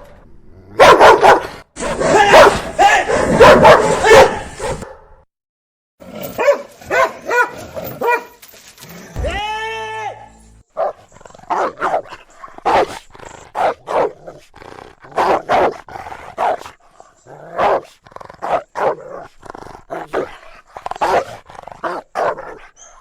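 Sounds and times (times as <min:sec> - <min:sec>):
dog barking: 0:00.8 - 0:05.1, 0:06.4 - 0:08.4, 0:10.8 - 0:14.2, 0:15.2 - 0:16.7, 0:17.6 - 0:19.1, 0:21.0 - 0:21.3, 0:21.9 - 0:22.6.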